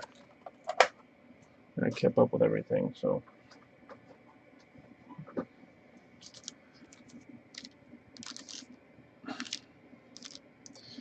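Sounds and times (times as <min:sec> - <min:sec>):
card pack crinkling and clicking: 0:06.2 - 0:08.8, 0:09.4 - 0:09.6, 0:10.2 - 0:10.9.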